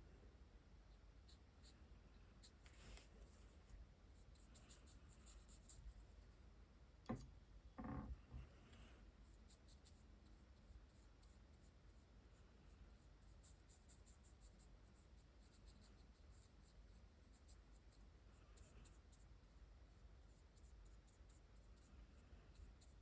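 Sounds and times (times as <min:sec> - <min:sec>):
marker scratching on paper: 0:02.4 - 0:06.3, 0:12.9 - 0:18.0.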